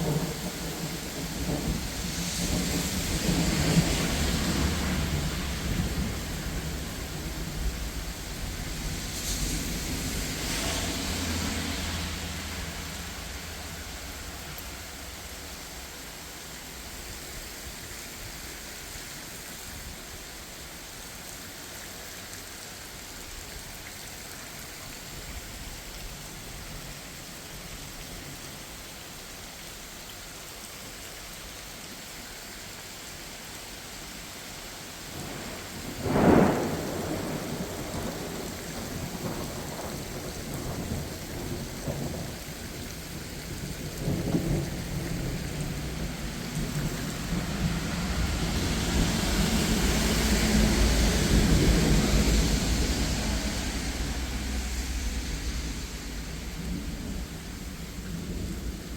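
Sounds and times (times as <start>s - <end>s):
rolling thunder rumbling: 0.0s - 14.0s, 35.2s - 58.9s
rain falling: 0.0s - 58.9s
thunderclap: 35.2s - 42.4s, 43.6s - 58.9s.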